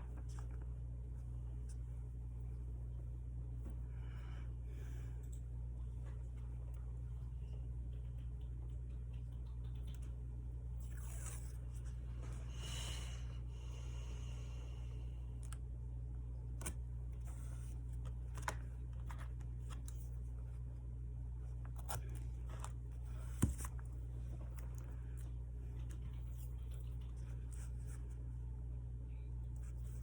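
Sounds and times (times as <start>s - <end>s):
low hum: 0.0s - 30.0s
small clicks and taps: 7.5s - 10.3s.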